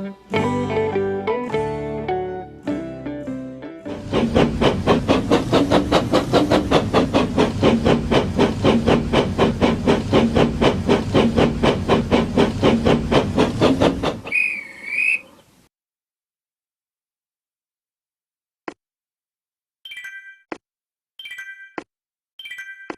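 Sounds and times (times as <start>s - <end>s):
steam locomotive chuffing: 3.9s - 15.4s
wavering locomotive whistle: 14.0s - 15.4s.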